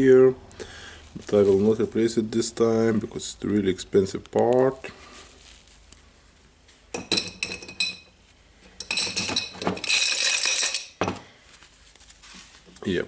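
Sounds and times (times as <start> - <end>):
steel parts clinking: 7.0 - 11.0.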